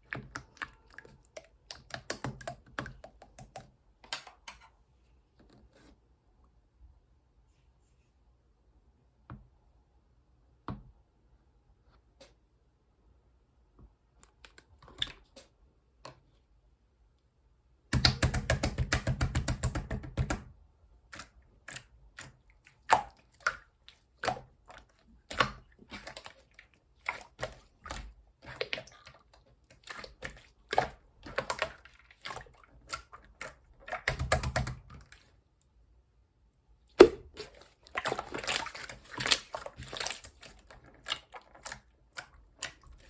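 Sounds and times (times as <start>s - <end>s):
slime squished by hand: 36.9s - 43.0s.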